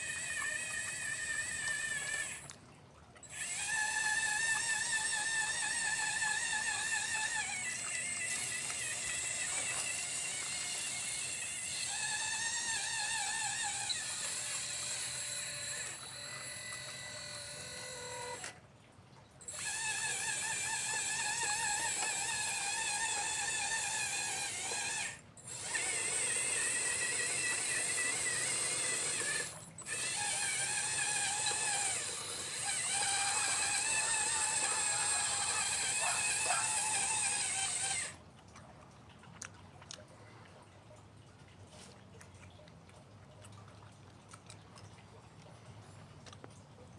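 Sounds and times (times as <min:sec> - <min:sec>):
electric motor and pump whining: 0:00.0 - 0:02.6, 0:03.2 - 0:18.7, 0:19.4 - 0:38.2.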